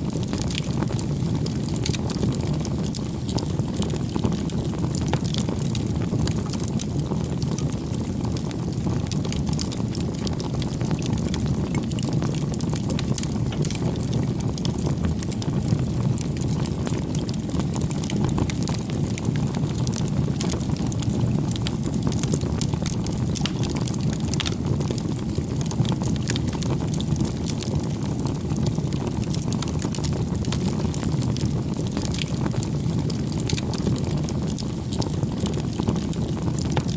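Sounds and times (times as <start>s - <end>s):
campfire crackling: 0.0s - 36.9s.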